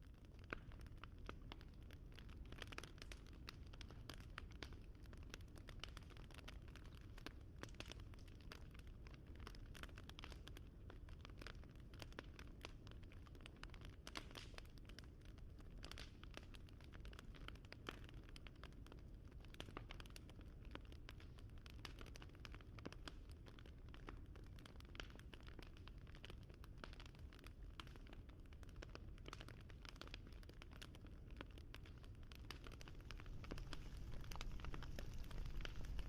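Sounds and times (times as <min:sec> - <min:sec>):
wood fire crackling: 0:00.1 - 0:36.0
low rumble: 0:32.8 - 0:36.0.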